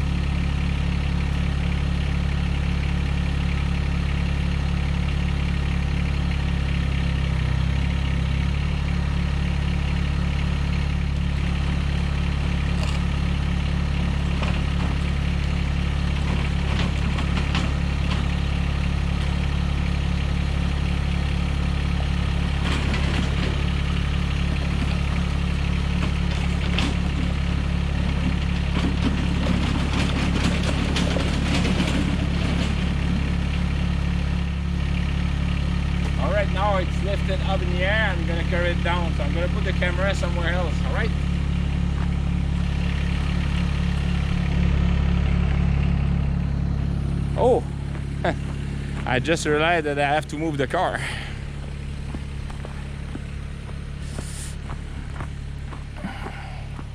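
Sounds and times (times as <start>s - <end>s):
tractor engine idling: 0.0s - 56.9s.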